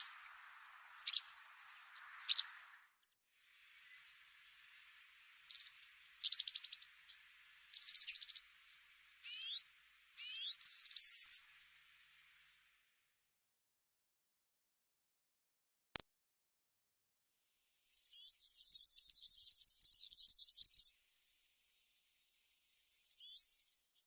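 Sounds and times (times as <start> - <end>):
songbird singing trills: 0.0 - 3.0, 3.7 - 12.8, 17.9 - 24.0.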